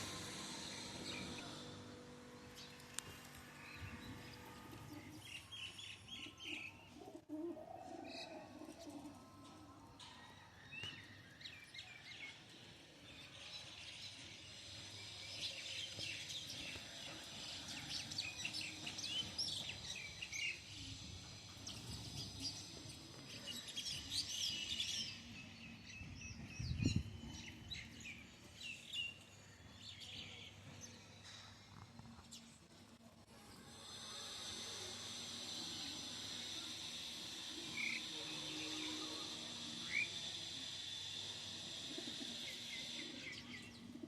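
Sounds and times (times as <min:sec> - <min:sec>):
birds chirping and twittering: 0:00.0 - 0:32.7, 0:33.6 - 0:44.0.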